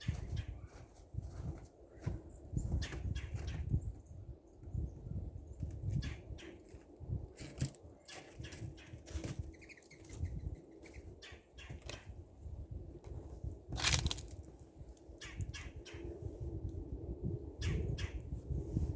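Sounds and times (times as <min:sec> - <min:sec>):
birds chirping: 0:08.0 - 0:12.1.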